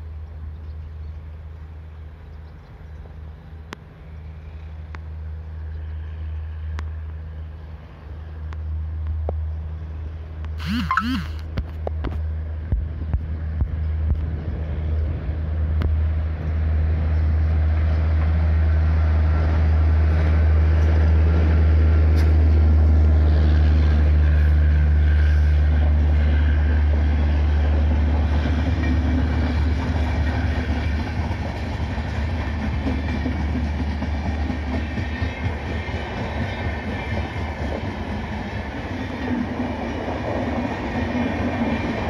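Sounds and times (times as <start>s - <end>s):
train wheels rumbling on rails: 11.5s - 42.0s.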